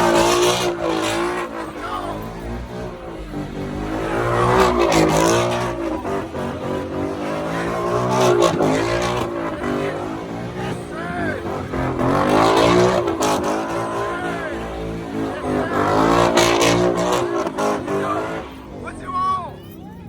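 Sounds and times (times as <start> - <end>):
truck engine revving: 0.0 - 20.0.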